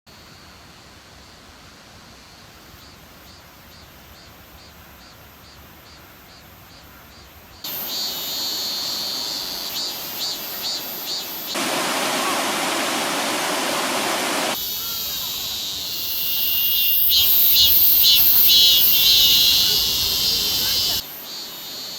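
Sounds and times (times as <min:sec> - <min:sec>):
stream rushing: 0:11.5 - 0:14.6
regular high chirping: 0:14.5 - 0:21.9.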